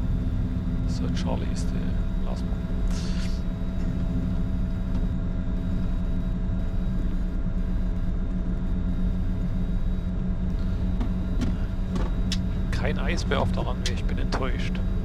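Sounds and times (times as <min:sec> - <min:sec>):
jet engines humming in cockpit: 0:00.0 - 0:15.0.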